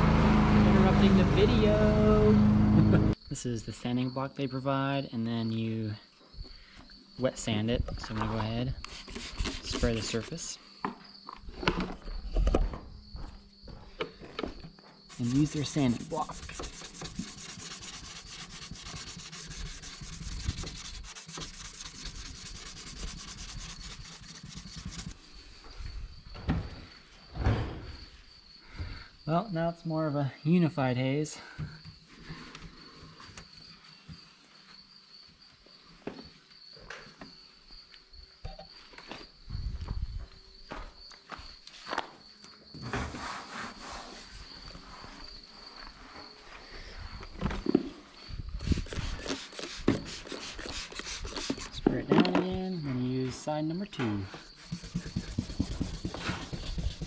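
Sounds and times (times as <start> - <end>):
cricket trill: 3.1 - 57.0
sanding block rubbing wet plastic: 8.9 - 10.5, 15.1 - 25.2, 48.7 - 51.8, 54.5 - 57.0.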